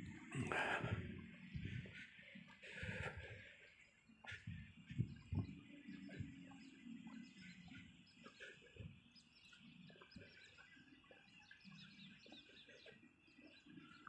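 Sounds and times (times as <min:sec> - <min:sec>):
faint birds chirping: 0:00.0 - 0:14.0.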